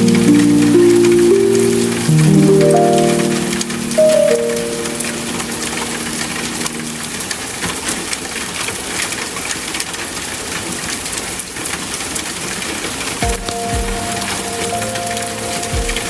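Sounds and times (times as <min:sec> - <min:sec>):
rain drops tapping: 0:00.0 - 0:16.0.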